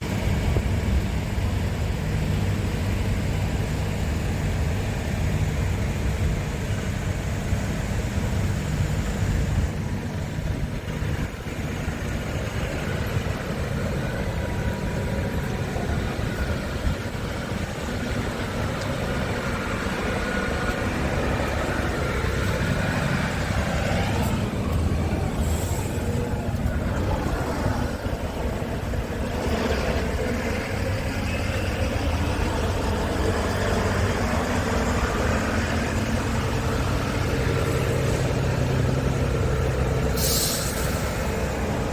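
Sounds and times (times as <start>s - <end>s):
diesel truck engine idling: 0.0s - 41.9s
short hiss: 40.2s - 41.3s.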